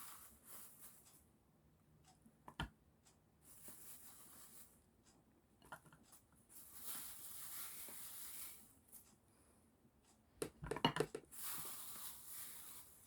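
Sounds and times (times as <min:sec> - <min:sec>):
soft rustling: 0:00.0 - 0:01.3, 0:03.5 - 0:04.8, 0:06.0 - 0:09.2
kitchen knocks and clatter: 0:10.4 - 0:11.3.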